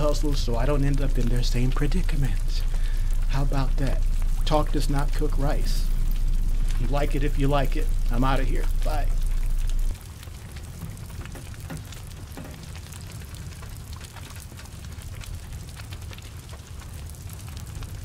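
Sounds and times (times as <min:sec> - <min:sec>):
fire crackling: 0:00.0 - 0:18.0
low rumble of fire: 0:00.0 - 0:18.0
steady rain: 0:00.0 - 0:18.0.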